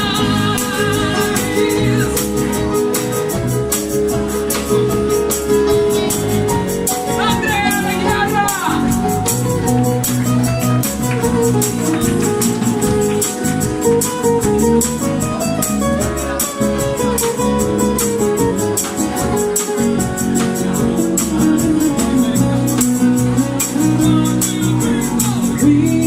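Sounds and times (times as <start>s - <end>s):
acoustic guitar: 0.0s - 26.0s
tambourine shaking: 0.0s - 26.0s.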